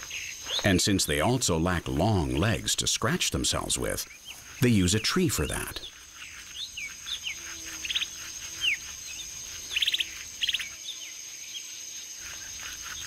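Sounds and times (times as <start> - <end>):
birds chirping: 0.0 - 13.0
bird rattling trills: 4.0 - 10.8.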